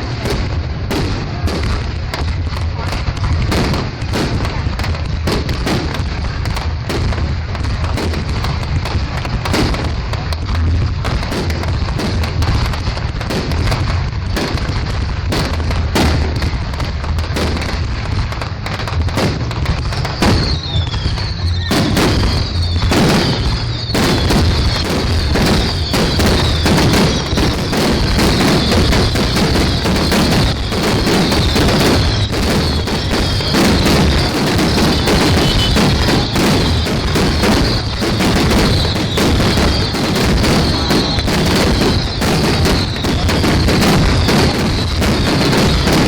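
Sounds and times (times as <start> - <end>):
fireworks bangs and crackles: 0.0 - 46.0
fireworks whistling: 0.0 - 46.0.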